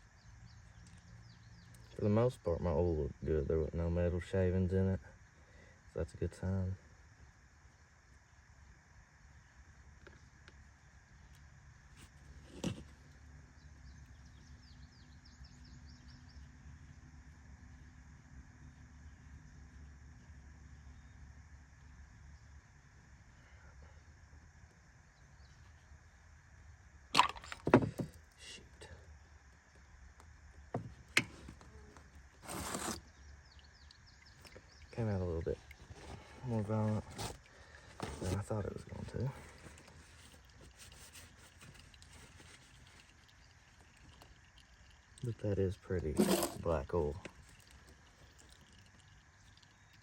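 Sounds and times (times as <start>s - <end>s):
oil gushing out: 34.2s - 50.0s
small bird chirping: 40.0s - 50.0s.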